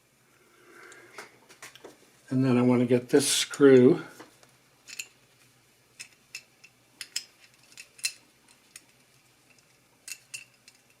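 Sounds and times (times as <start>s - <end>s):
light metallic clicks and clinks: 4.9s - 5.2s, 6.0s - 11.0s.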